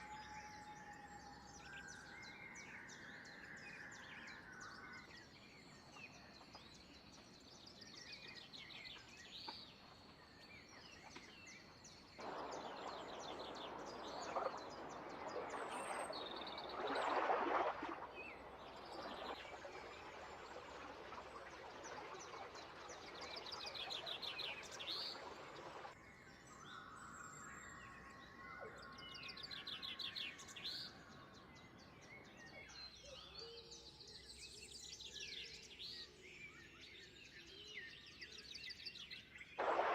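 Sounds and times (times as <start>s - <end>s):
birds chirping and trilling: 8.0s - 39.8s
steady rushing noise: 12.2s - 19.8s, 39.6s - 39.9s.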